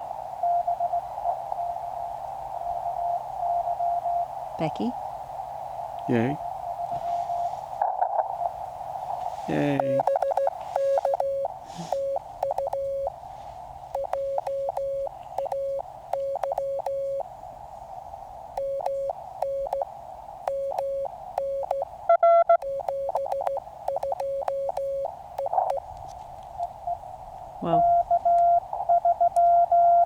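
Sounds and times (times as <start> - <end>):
receiver hiss: 0.0 - 30.0
morse code tone: 9.5 - 13.1, 13.9 - 17.2, 18.6 - 19.8, 20.5 - 25.8, 27.7 - 30.0.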